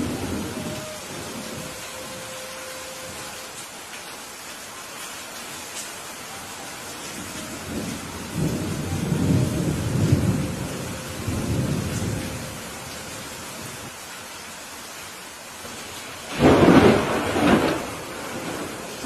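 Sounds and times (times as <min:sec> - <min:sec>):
thunder rumbling: 0:00.0 - 0:03.4, 0:07.1 - 0:13.8, 0:16.3 - 0:19.0
steady rain: 0:00.0 - 0:19.0.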